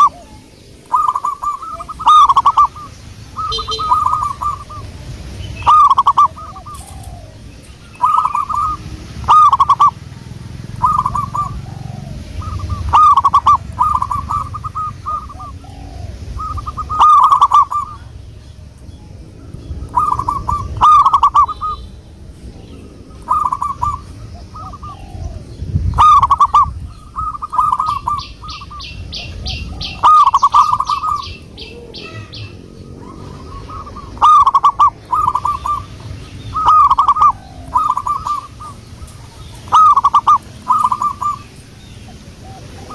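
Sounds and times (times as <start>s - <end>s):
dove cooing: 0.0s - 42.9s
high ticking notes: 0.8s - 6.9s, 7.9s - 10.0s, 10.6s - 11.7s, 12.4s - 15.6s, 16.2s - 18.2s, 19.5s - 21.9s, 33.6s - 41.9s.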